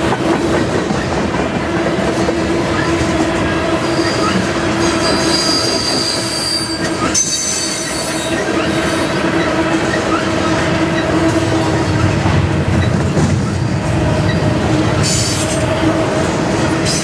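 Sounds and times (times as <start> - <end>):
freight cars rumbling on rails: 0.0 - 17.0
wheels squealing: 3.8 - 15.5.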